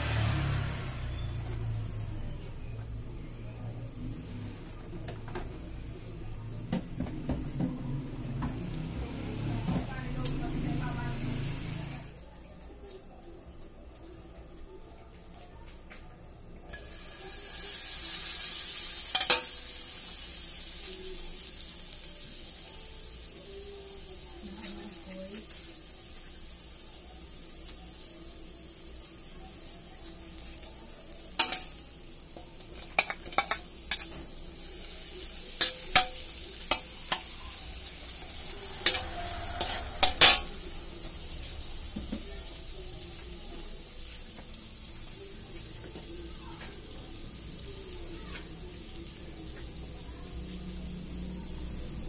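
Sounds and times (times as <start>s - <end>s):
butter sizzling in a wok: 0.0s - 4.6s, 5.9s - 12.2s, 16.7s - 52.0s
metal turner clacking on wok: 32.9s - 34.1s, 38.8s - 40.5s.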